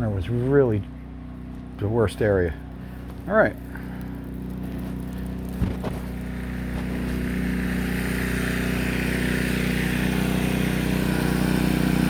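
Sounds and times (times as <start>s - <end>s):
pressure washer engine running: 0.0s - 12.0s
water spray hiss: 4.7s - 12.0s.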